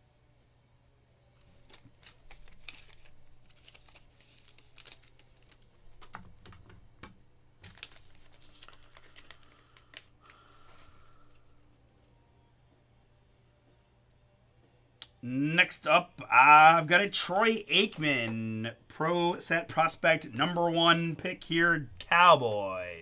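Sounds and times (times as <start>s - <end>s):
card packs rustling and clicking: 1.4s - 11.7s.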